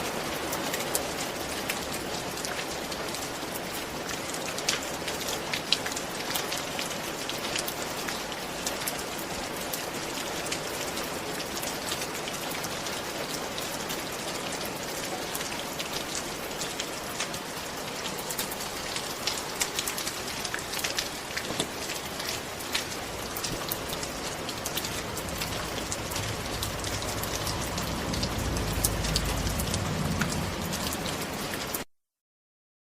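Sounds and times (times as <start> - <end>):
steady rain falling: 0.0 - 31.9
low rumble: 24.8 - 31.4.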